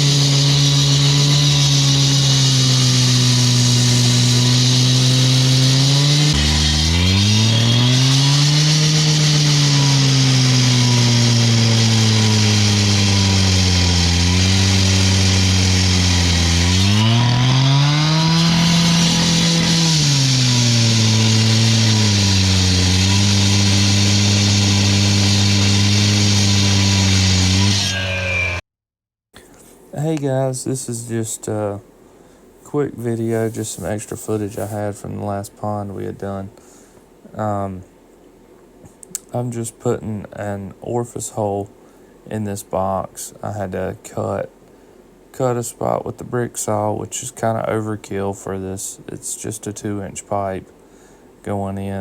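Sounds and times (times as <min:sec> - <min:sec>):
cut-off saw cutting concrete: 0:00.0 - 0:28.6.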